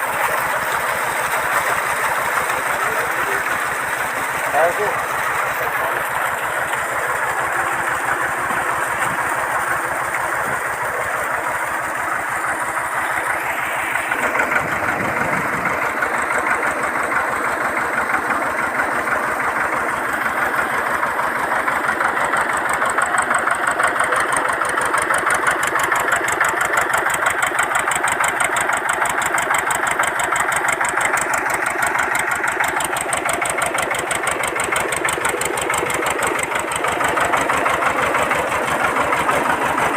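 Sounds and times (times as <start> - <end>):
tractor engine running: 0.0 - 39.9
deeper rumble: 14.0 - 15.9.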